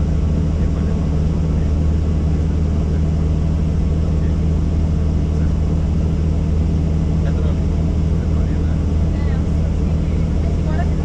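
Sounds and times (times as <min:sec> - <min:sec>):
helicopter engine and rotor: 0:00.0 - 0:11.0.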